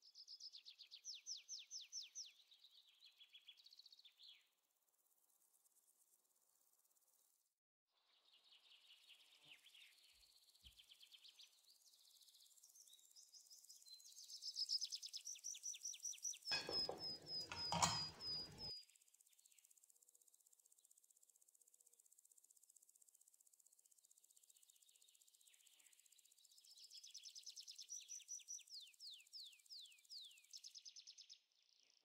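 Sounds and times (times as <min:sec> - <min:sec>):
birds chirping and trilling: 0:12.6 - 0:18.7.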